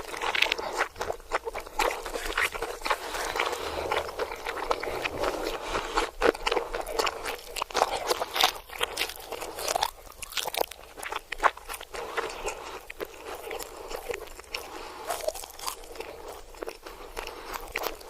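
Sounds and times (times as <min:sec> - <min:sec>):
reversed crunching and chewing: 0:00.0 - 0:18.0.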